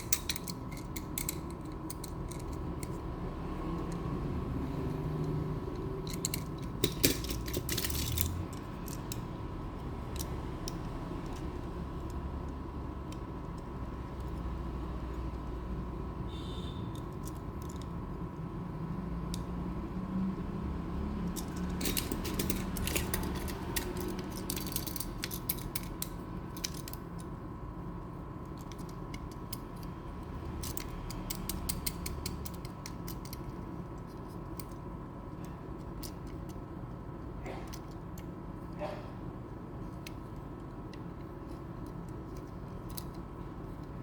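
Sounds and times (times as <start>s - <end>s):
toy parts clicking and clattering: 0.0s - 3.1s, 5.2s - 14.6s, 16.9s - 18.3s, 21.2s - 27.4s, 28.4s - 38.3s, 39.8s - 44.0s.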